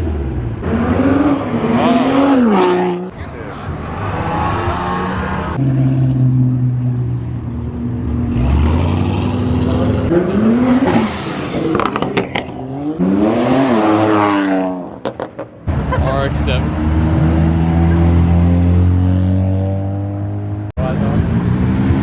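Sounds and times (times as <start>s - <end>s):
car engines accelerating: 0.0s - 22.0s.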